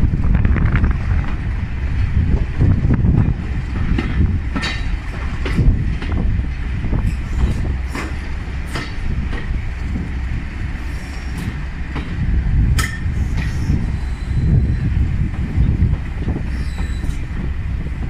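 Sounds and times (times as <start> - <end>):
train carriage rumbling: 0.0 - 18.0
wheel clicks over rail joints: 3.1 - 10.2.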